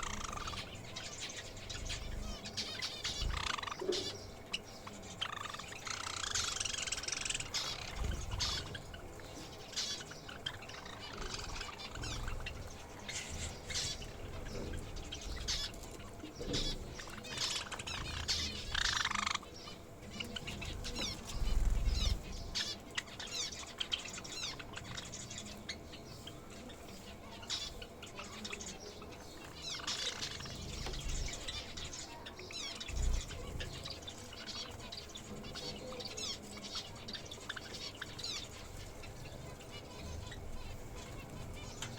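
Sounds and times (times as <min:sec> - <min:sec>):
birds chirping and calling: 0:00.0 - 0:41.9
wings fluttering: 0:05.2 - 0:28.7, 0:29.4 - 0:41.9.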